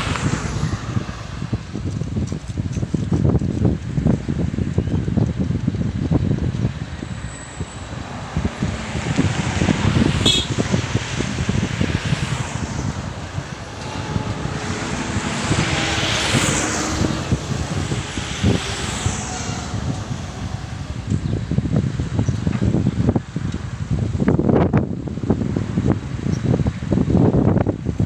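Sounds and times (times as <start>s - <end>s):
excavator diesel engine rumbling: 0.0s - 4.7s, 5.6s - 23.1s.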